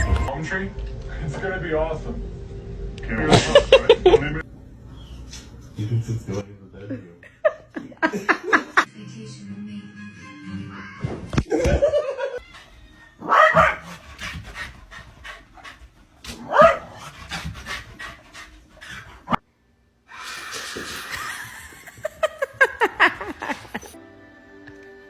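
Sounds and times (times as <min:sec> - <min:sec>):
dog panting: 0:12.4 - 0:19.4, 0:21.2 - 0:24.0.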